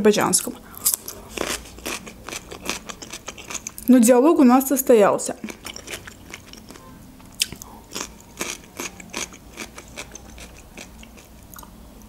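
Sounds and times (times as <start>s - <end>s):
crisp chewing crunches: 0.8s - 3.9s, 5.4s - 11.7s
cucumber crunching when bitten: 7.4s - 11.7s.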